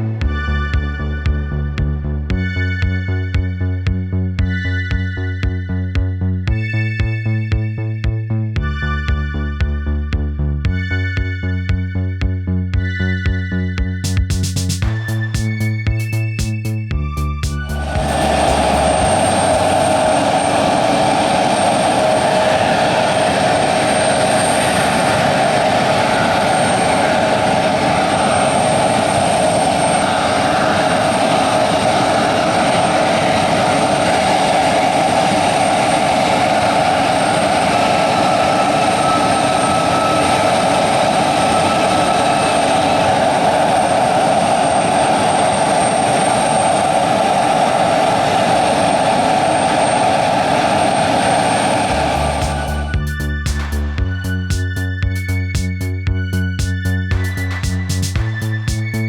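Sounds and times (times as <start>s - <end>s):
jet engines running: 14.4s - 59.0s
thin high whine: 15.0s - 59.0s.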